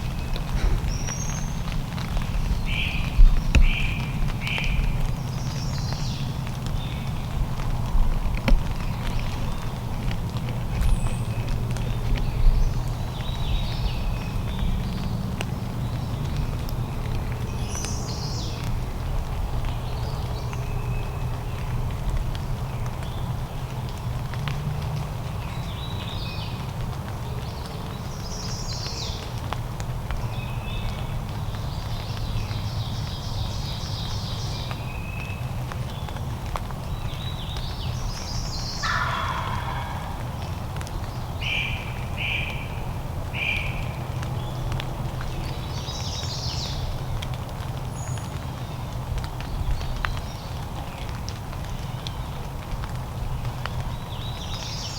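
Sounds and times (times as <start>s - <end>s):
steady low rumble: 0.0s - 5.4s
small birds chirping: 0.0s - 7.4s, 30.2s - 47.0s
wild turkey gobbling: 38.8s - 40.4s
light ticks: 46.7s - 54.5s.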